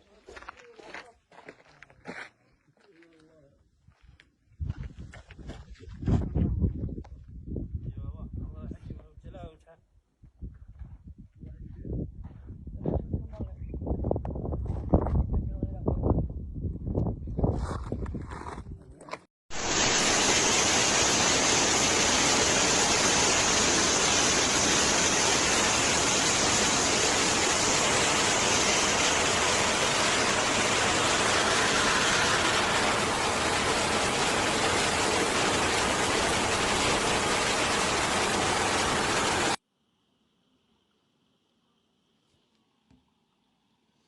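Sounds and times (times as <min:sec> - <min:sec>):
dense rushing noise: 0:19.5 - 0:39.6.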